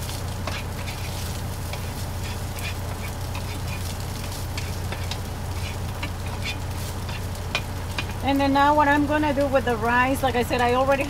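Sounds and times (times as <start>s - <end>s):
food sizzling in a skillet: 0.0s - 11.0s.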